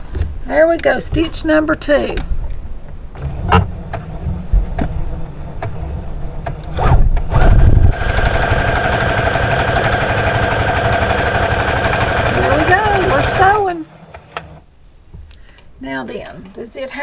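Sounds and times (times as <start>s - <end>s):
sewing machine running: 5.4s - 14.6s.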